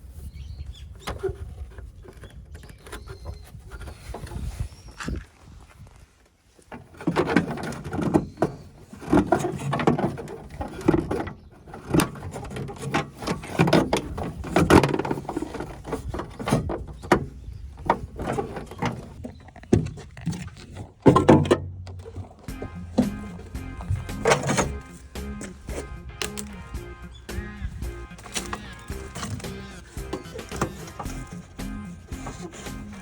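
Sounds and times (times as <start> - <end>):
knocks and clatter of handwork: 28.2 - 33.0.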